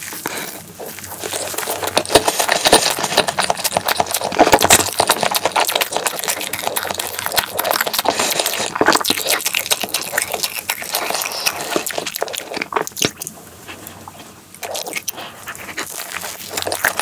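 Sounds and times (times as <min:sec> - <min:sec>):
chewing with mouth clicks: 0:00.0 - 0:17.0.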